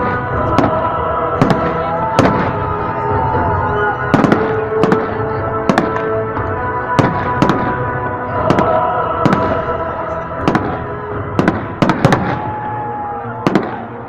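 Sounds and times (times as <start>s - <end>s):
fireworks bangs: 0.0s - 2.8s, 4.1s - 6.2s, 7.0s - 9.8s, 10.4s - 12.7s.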